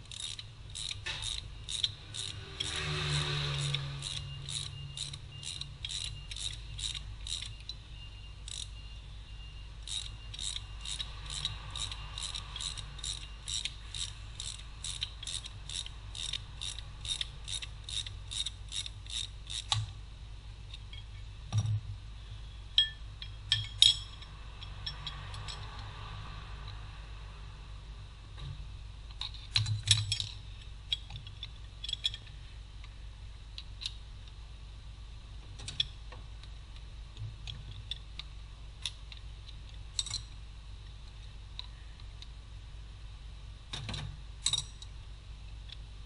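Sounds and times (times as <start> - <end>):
ratchet wrench clicking: 0.0 - 7.8, 8.4 - 8.8, 9.8 - 19.9
metal clinks and knocks: 22.8 - 25.9, 29.2 - 32.3.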